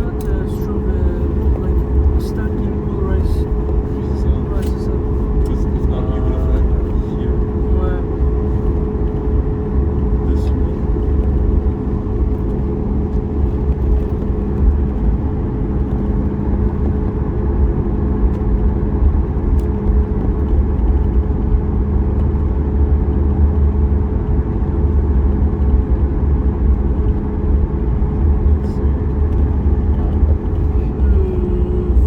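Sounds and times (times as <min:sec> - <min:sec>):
aircraft cabin engine rumble: 0:00.0 - 0:32.0
steady engine hum: 0:00.0 - 0:32.0.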